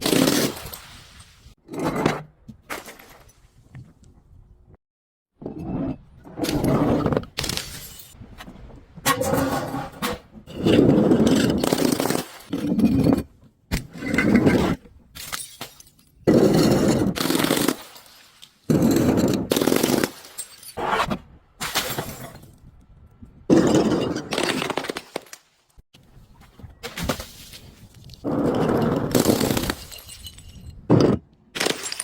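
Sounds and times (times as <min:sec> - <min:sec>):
objects crunching and breaking: 0:26.8 - 0:32.0.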